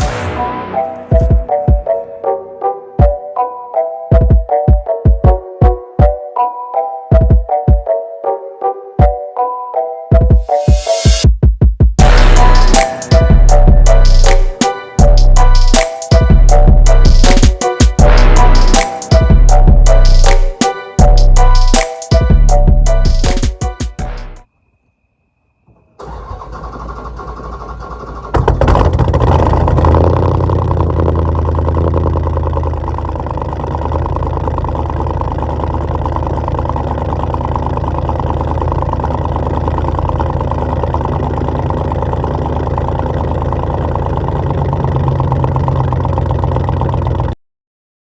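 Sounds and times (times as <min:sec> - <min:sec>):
car engine starting and idling: 0:26.0 - 0:47.4
starter motor cranking: 0:26.0 - 0:47.4.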